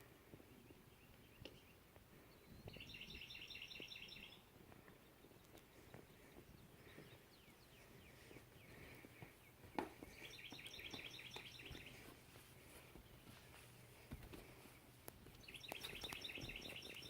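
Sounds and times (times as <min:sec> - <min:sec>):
bird chirps and trill: 0:02.6 - 0:04.4, 0:10.1 - 0:12.0, 0:15.4 - 0:17.0.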